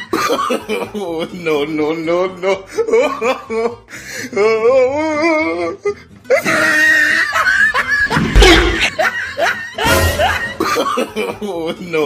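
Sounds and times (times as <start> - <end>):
loud laughter and shrieking: 6.3 - 11.7.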